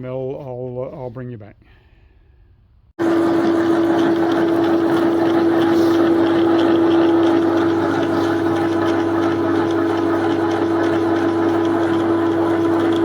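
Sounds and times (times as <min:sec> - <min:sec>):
milling machine whining: 0:03.0 - 0:13.0.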